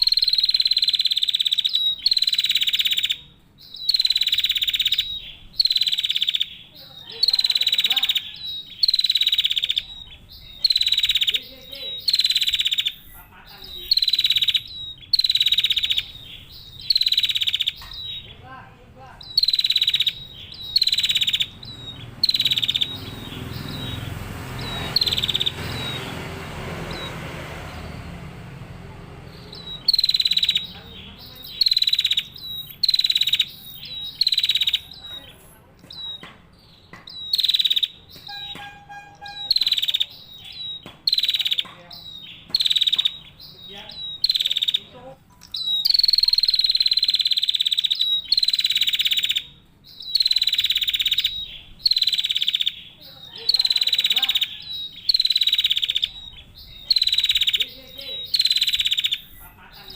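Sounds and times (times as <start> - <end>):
bird sharp chirps: 0.0 - 59.9
rushing background noise: 19.2 - 38.6.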